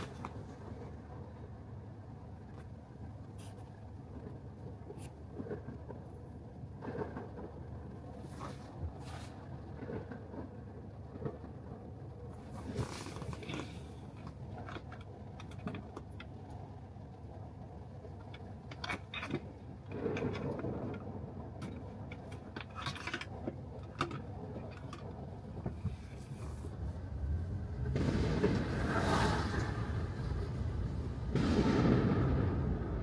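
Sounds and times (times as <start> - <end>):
tyres rumbling on wet road: 0.0 - 33.0
small irregular clicks: 12.4 - 26.9.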